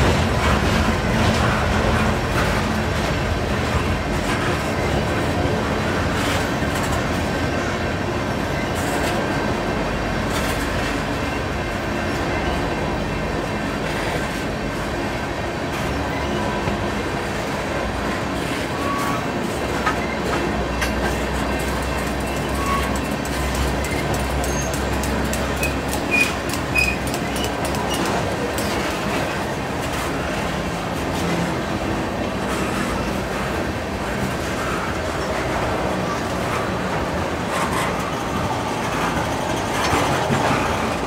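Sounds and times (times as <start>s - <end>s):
wheels clacking over rail joints: 0.0s - 7.8s, 17.9s - 41.0s
train wheels rumbling on rail: 0.0s - 41.0s.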